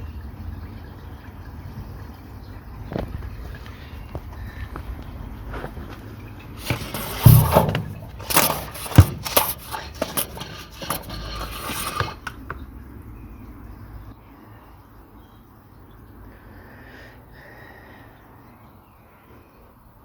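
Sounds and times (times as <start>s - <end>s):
hard objects scraping: 6.4s - 12.4s
sharp knocks: 6.6s - 12.4s.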